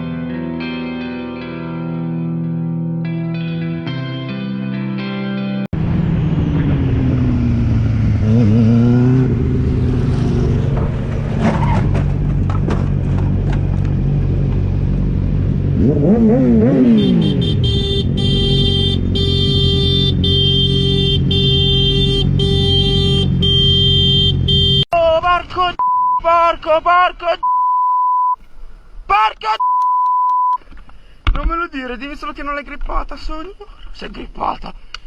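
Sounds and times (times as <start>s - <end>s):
vehicle engine revving: 5.8s - 24.8s.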